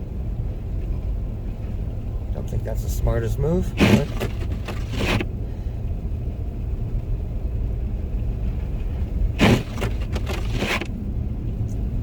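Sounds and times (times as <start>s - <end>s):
car road and engine rumble: 0.0s - 12.0s
windshield wiper swish: 3.7s - 5.2s, 9.4s - 10.9s.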